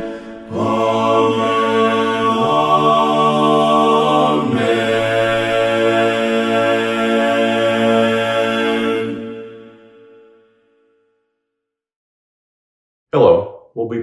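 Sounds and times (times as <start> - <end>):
voices singing in harmony: 0.0 - 10.2.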